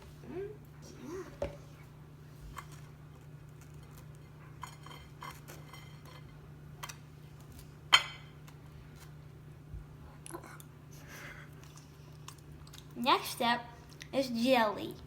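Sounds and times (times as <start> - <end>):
low steady hum: 0.0 - 15.0
knife and dishes clinking: 4.6 - 6.4.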